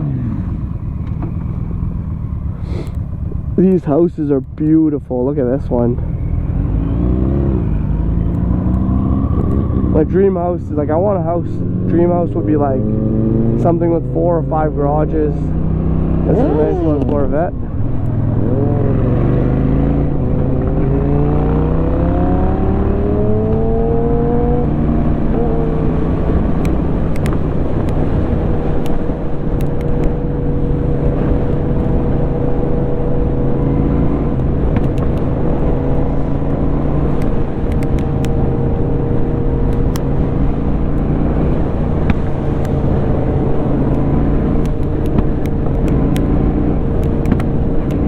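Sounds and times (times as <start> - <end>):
motorcycle engine revving: 0.0 - 3.6, 6.0 - 10.2, 15.4 - 28.6.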